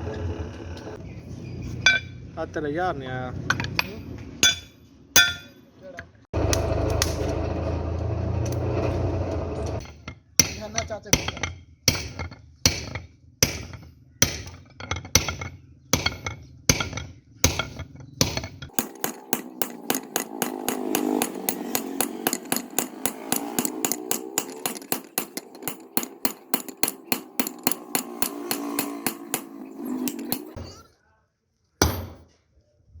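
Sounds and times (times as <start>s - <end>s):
hammer striking metal on anvil: 1.9s - 2.2s, 3.5s - 5.7s, 9.8s - 30.6s, 31.8s - 32.2s.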